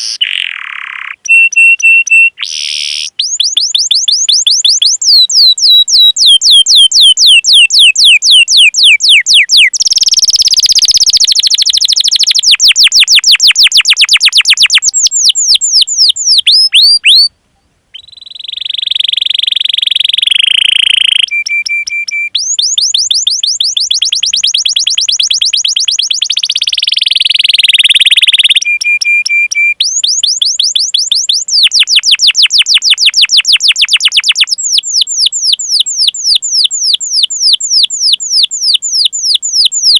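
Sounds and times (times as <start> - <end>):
canary singing trills: 0.0 - 17.3, 17.9 - 39.9
canary whistled notes: 0.0 - 17.3, 18.0 - 39.9.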